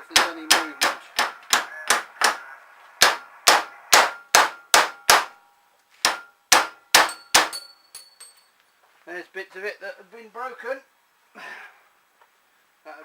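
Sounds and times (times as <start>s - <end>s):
hammer clanging on steel: 0.0s - 2.4s, 3.0s - 8.6s.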